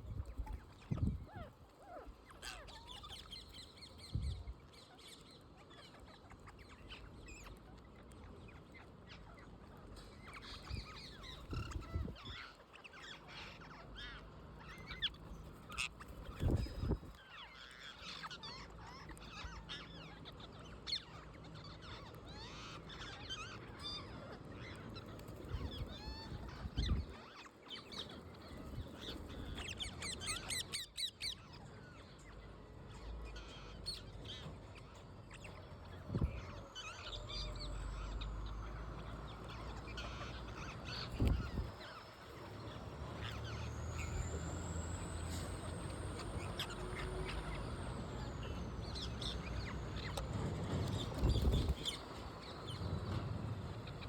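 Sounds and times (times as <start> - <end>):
parrots squawking: 36.4 - 50.2.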